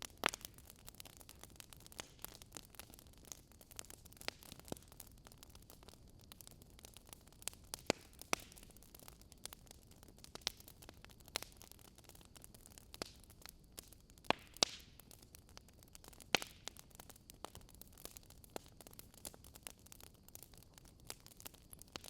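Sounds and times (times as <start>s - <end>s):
burning logs crackling and popping: 0.0s - 22.0s
soft steady hiss: 0.0s - 22.0s.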